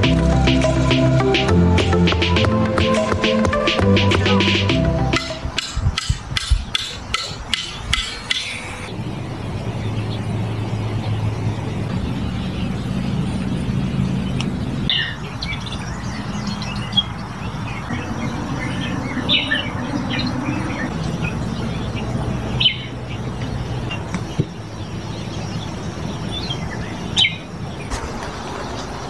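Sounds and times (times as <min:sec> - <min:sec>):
wild birds chirping and calling: 0:00.0 - 0:29.0
steady low hum: 0:07.4 - 0:27.8.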